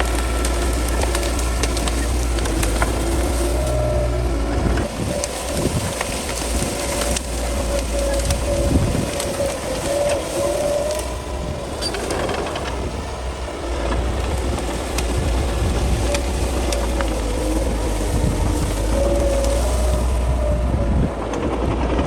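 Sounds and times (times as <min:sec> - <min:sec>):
bulldozer diesel engine rumbling: 0:00.0 - 0:22.0.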